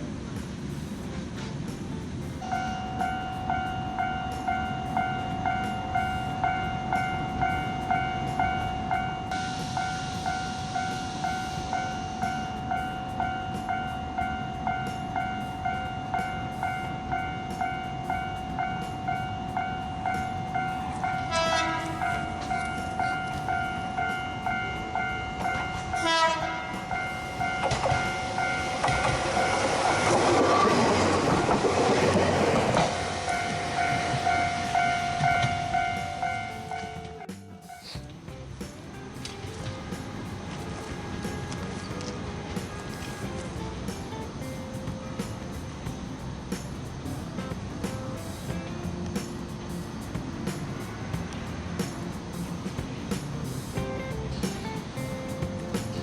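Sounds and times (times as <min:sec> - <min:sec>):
train running noise: 0:00.0 - 0:56.0
level crossing bell ringing: 0:02.4 - 0:30.0
short horn toots: 0:21.1 - 0:30.1.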